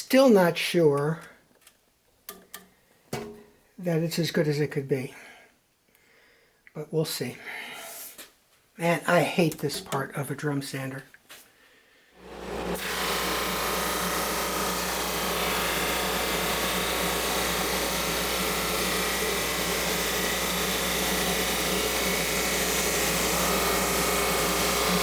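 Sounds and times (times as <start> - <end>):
drum sander running: 12.2 - 25.0.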